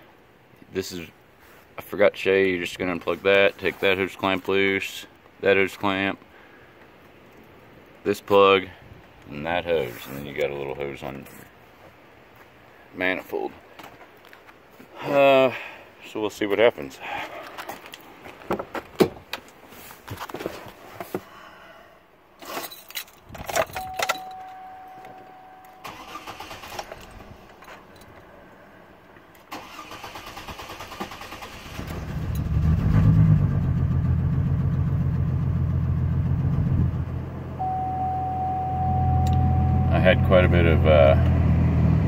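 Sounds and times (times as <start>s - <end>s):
electronic chime: 23.8s - 25.9s, 37.6s - 40.5s
engine cranking and idling: 25.8s - 28.2s, 29.4s - 37.8s.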